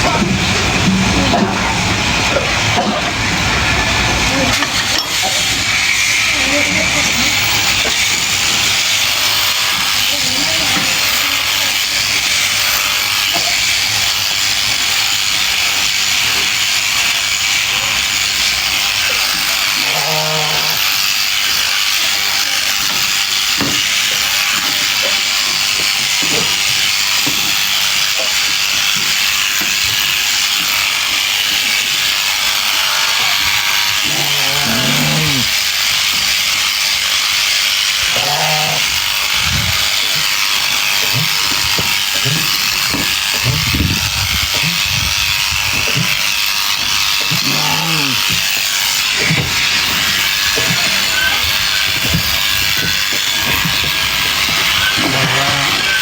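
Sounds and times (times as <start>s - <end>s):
electric clippers shearing fleece: 0.0s - 56.0s
sheep bleating: 19.1s - 21.1s, 32.5s - 36.1s, 37.7s - 44.0s, 47.0s - 56.0s.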